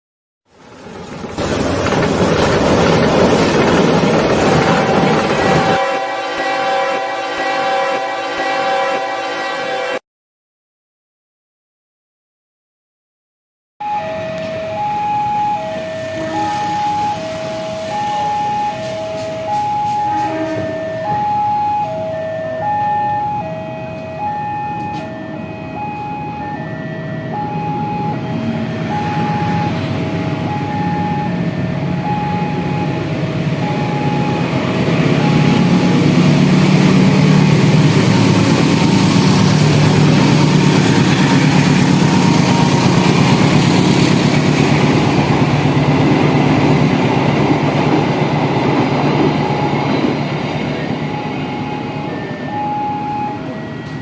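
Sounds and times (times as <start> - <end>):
train wheel noise: 0.5 - 7.2, 14.0 - 54.0
train engine drone: 0.5 - 10.0, 13.8 - 54.0
level crossing two-tone beep: 28.9 - 29.8, 30.4 - 31.4, 32.0 - 33.0, 33.6 - 34.5, 51.1 - 54.0.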